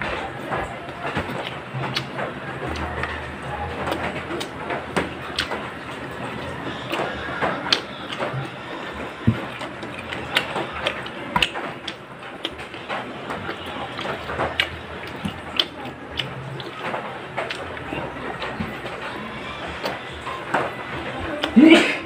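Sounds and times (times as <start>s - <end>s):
wet chewing and lip-smacking: 0.0s - 21.9s.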